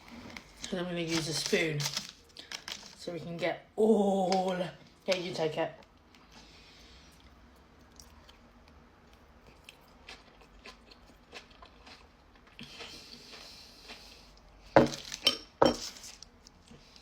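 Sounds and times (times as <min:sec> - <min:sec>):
chewing with small crunches: 0:06.1 - 0:17.0.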